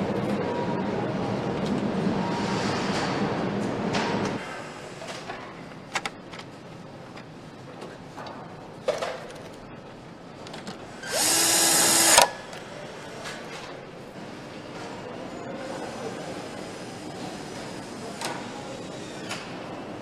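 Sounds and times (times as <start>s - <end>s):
power tool running: 11.0s - 12.3s.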